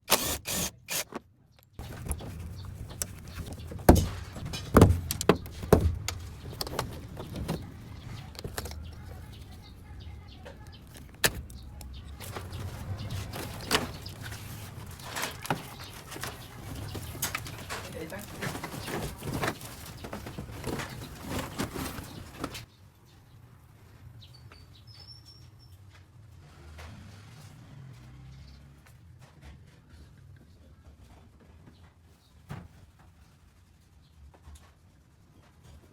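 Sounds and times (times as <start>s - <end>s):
sharp knocks and clanks: 1.8s - 9.3s.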